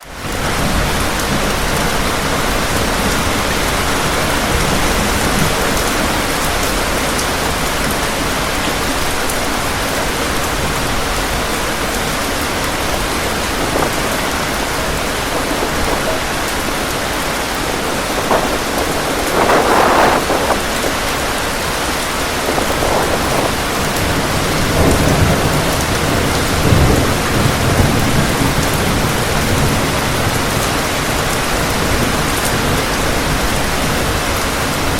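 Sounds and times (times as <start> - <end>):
wind: 0.0 - 34.9
heavy rain: 0.4 - 32.9.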